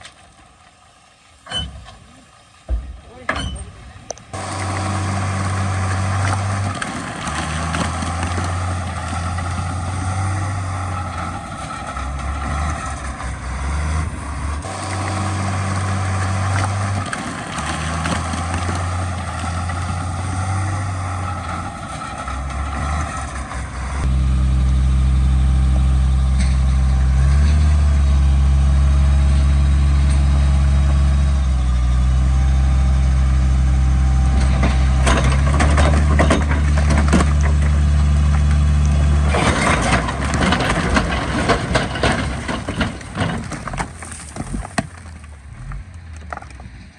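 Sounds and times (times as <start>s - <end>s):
heavy diesel machinery running: 2.7s - 46.9s.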